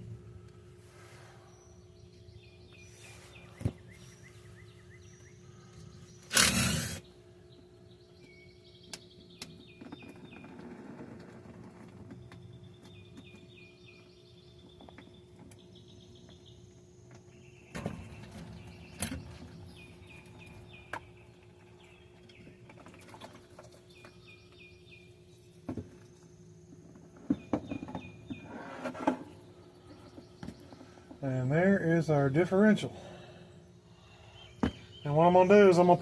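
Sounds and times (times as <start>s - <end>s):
steady low hum: 0.0s - 36.0s
bird chirping: 1.2s - 10.8s, 12.2s - 23.0s, 23.7s - 36.0s.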